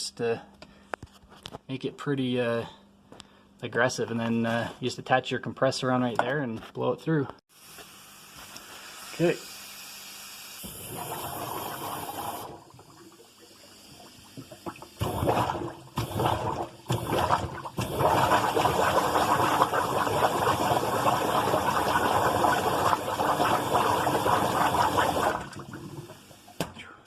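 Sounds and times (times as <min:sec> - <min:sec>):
water rushing through drain line: 0:09.7 - 0:26.7.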